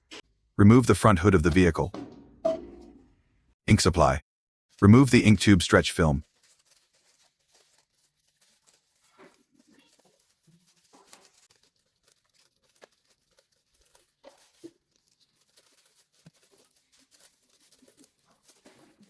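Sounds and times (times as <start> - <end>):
plastic film crinkling and tearing: 6.2 - 19.0.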